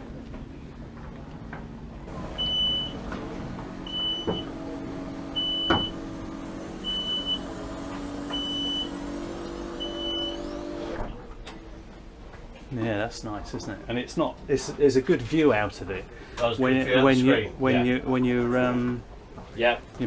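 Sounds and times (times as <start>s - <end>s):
electric actuator motor hum: 2.1s - 11.1s
high warning beep: 2.4s - 3.0s, 3.9s - 4.5s, 5.3s - 6.0s, 6.8s - 7.6s, 8.3s - 9.1s, 9.8s - 10.5s.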